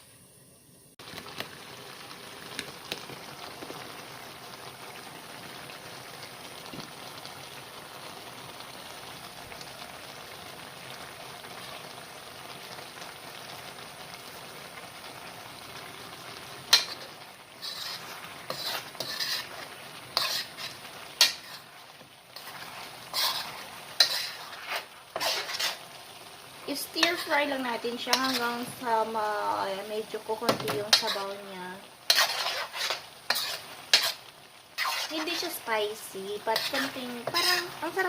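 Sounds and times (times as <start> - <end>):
chicken wings sizzling in pan: 0.0 - 38.0
utensil scraping pan: 16.7 - 26.0, 26.9 - 28.8, 30.5 - 31.5, 32.1 - 38.0.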